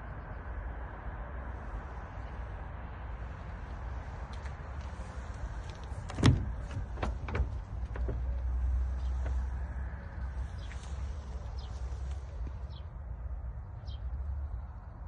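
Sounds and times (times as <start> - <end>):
steady low rumble: 0.0 - 15.0
sharp clicks and knocks: 5.6 - 9.4.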